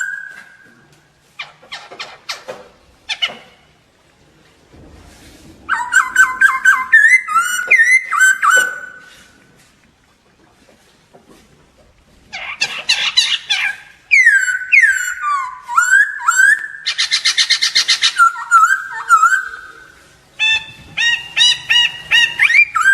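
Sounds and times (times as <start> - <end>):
bird singing varied song: 12.7 - 22.9.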